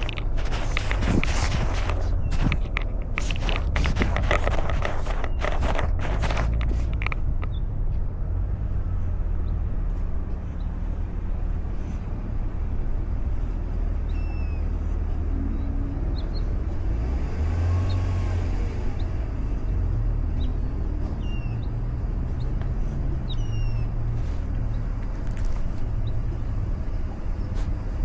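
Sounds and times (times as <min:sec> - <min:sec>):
vehicle passing by: 0:08.1 - 0:28.0.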